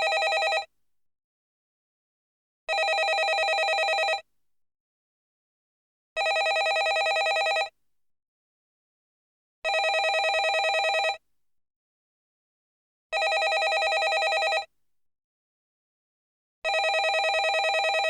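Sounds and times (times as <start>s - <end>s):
telephone ringing: 0.0s - 0.7s, 2.7s - 4.2s, 6.2s - 7.7s, 9.7s - 11.2s, 13.2s - 14.7s, 16.7s - 18.0s.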